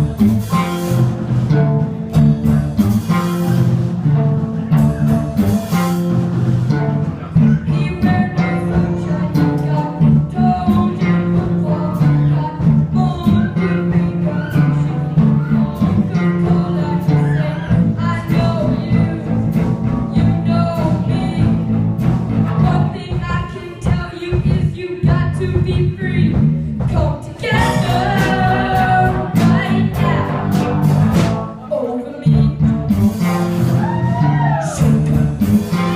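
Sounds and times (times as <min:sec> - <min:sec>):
guitar: 0:00.0 - 0:35.9
live band playing: 0:00.0 - 0:35.9
person singing: 0:07.1 - 0:21.8, 0:22.6 - 0:33.0, 0:33.8 - 0:35.9.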